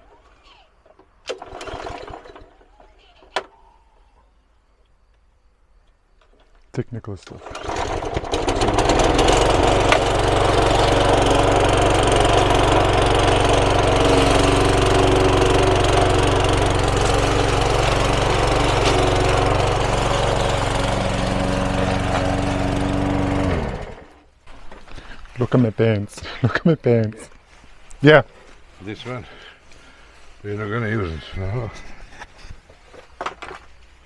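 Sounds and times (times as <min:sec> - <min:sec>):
lawn mower engine running: 0:01.2 - 0:02.9, 0:07.2 - 0:24.4.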